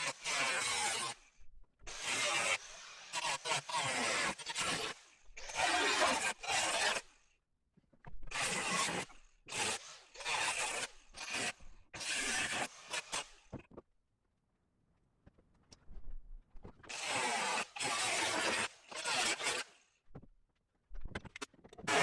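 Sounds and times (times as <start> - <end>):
rasping scrapes on sheet metal: 5.6 - 7.0, 16.9 - 19.7.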